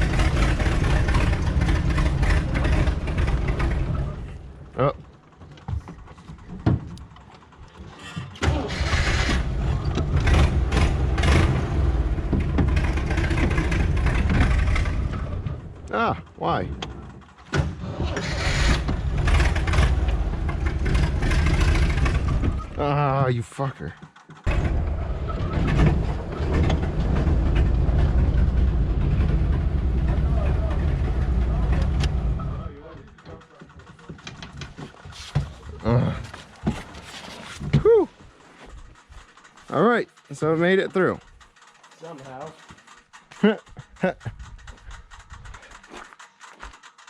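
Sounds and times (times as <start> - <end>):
car engine starting and revving: 0.0 - 4.8, 8.4 - 16.0, 17.1 - 23.0, 24.5 - 33.1
vehicle knocks and rattles: 0.0 - 15.9, 16.5 - 47.0.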